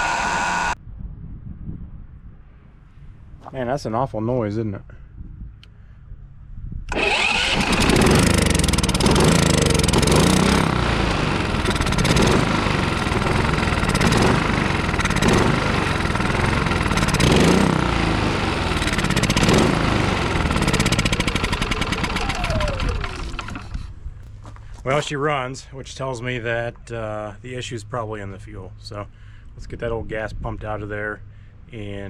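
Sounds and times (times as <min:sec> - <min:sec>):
generator engine running rough: 0:00.0 - 0:00.8, 0:06.9 - 0:23.9.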